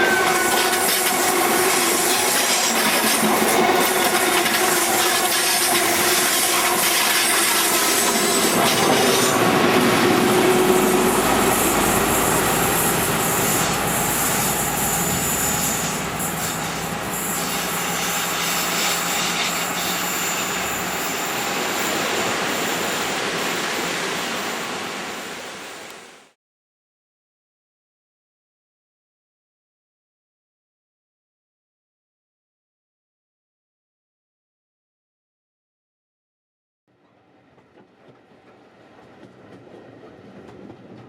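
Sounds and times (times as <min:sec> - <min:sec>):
train wheel squeal: 0:00.0 - 0:26.1
train running past: 0:00.0 - 0:26.4, 0:36.9 - 0:41.0.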